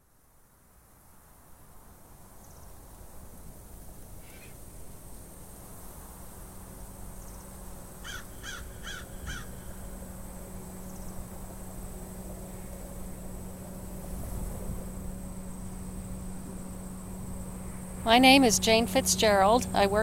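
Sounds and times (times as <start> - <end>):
low steady hum: 0.0 - 20.0
bird calls: 4.2 - 4.6, 8.0 - 9.7.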